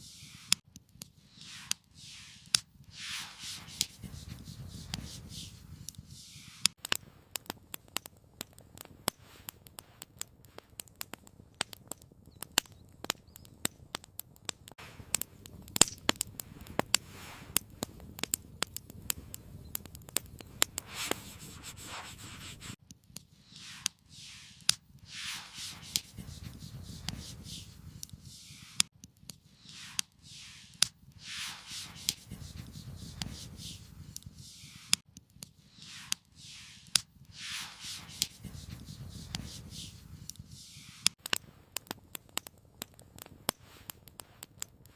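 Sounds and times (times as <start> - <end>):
campfire crackling: 0.0 - 44.9
soft rushing swells: 1.3 - 5.6, 23.5 - 28.8, 29.6 - 35.0, 35.8 - 40.0
low hiss: 1.3 - 6.8, 23.4 - 28.9, 29.5 - 35.0, 35.7 - 41.2.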